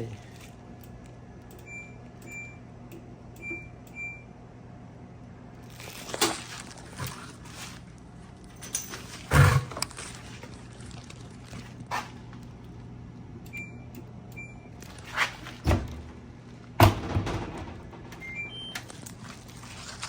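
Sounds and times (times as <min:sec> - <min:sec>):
washer control panel beeping: 0:01.5 - 0:04.3, 0:13.4 - 0:14.8, 0:18.1 - 0:18.9.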